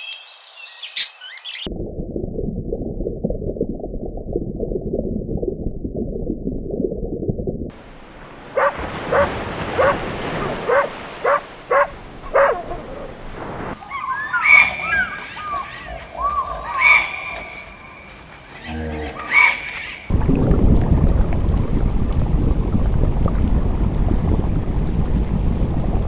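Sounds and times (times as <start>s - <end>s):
low muffled rumbling: 1.7s - 8.4s, 20.1s - 26.0s
animal barking: 8.6s - 13.2s, 13.8s - 17.7s.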